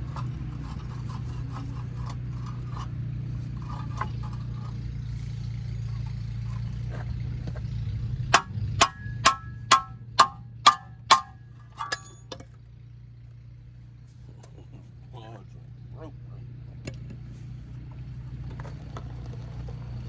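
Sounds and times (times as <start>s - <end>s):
hammer striking metal: 8.3s - 12.3s.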